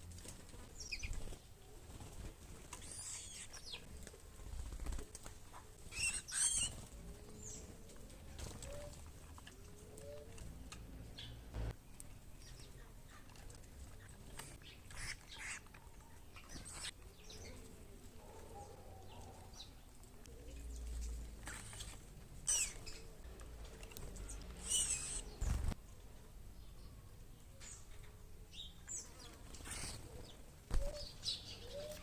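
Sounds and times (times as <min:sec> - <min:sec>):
wings fluttering: 0:00.0 - 0:10.7, 0:20.6 - 0:25.8, 0:29.0 - 0:31.2
small birds chirping: 0:00.2 - 0:32.0.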